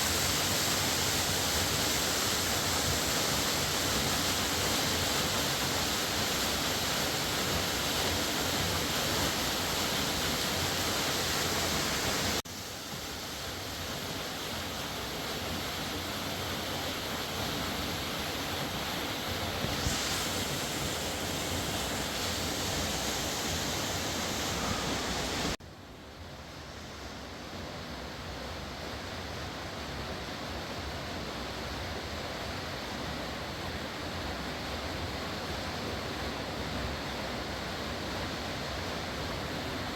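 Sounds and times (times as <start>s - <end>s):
fast river rushing: 14.1s - 25.6s.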